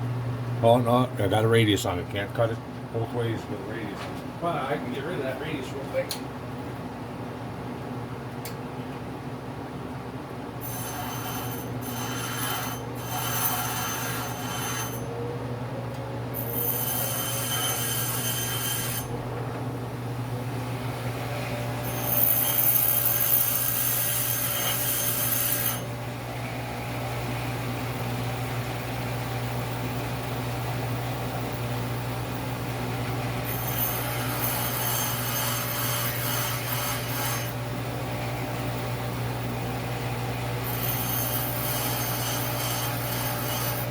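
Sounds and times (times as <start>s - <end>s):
tool bit rasping on grinding wheel: 10.6s - 15.1s, 16.4s - 19.2s, 21.8s - 25.9s, 33.4s - 37.6s, 40.6s - 43.9s
grinder motor running: 21.8s - 25.9s, 33.0s - 38.6s, 40.5s - 43.9s.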